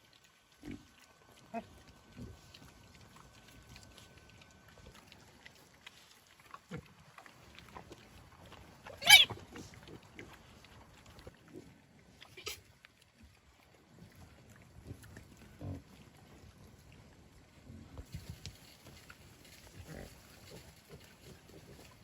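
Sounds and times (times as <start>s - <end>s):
pigs grunting: 0.5s - 12.6s, 14.8s - 16.0s, 19.6s - 22.0s
pig squealing: 8.9s - 9.4s.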